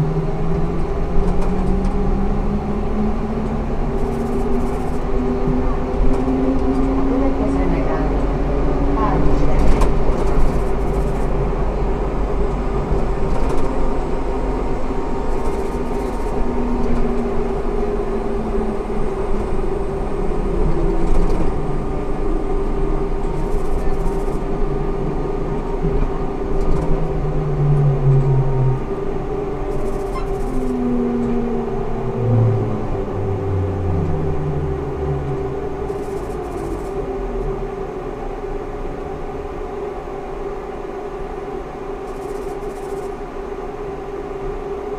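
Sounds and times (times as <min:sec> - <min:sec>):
traction drive tones sliding in pitch: 0:00.0 - 0:09.1, 0:13.6 - 0:37.8
trolleybus electric whine: 0:00.0 - 0:44.9.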